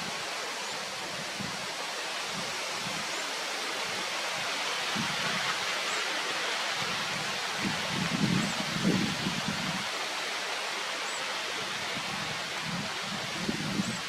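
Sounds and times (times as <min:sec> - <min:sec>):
steady rushing hiss: 0:00.0 - 0:14.0.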